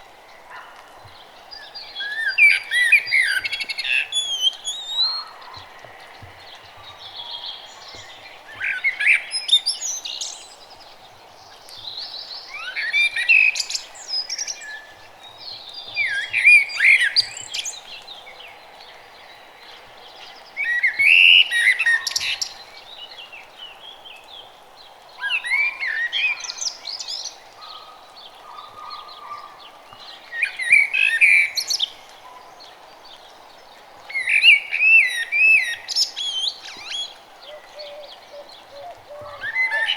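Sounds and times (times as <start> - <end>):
faint background hiss: 0.0 - 39.9
songbird warbling: 2.0 - 10.3, 34.2 - 39.9.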